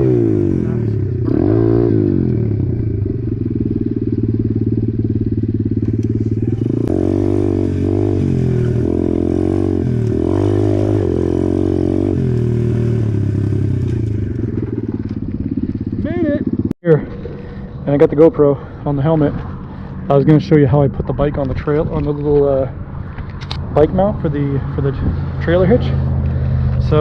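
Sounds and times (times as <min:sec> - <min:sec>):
motorcycle engine revving: 0:00.0 - 0:20.7.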